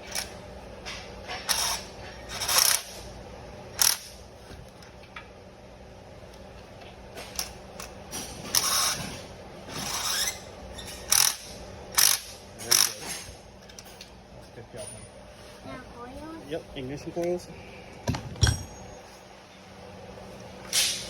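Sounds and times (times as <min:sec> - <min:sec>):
tools scraping and rattling: 0:00.0 - 0:03.1, 0:07.1 - 0:15.6, 0:18.0 - 0:19.3.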